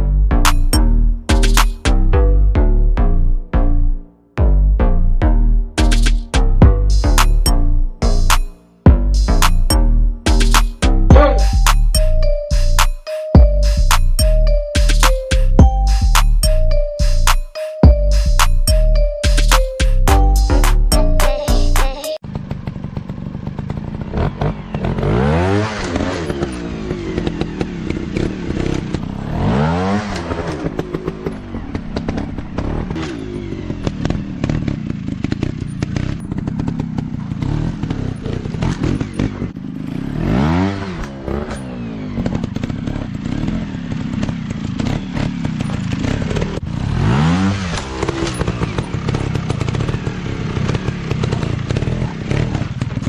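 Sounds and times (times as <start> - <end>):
dirt bike engine revving: 21.9 - 53.0.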